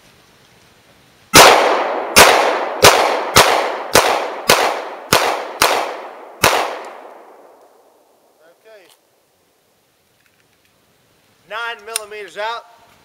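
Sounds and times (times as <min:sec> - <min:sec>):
gunshots with long echo: 0:01.3 - 0:08.3.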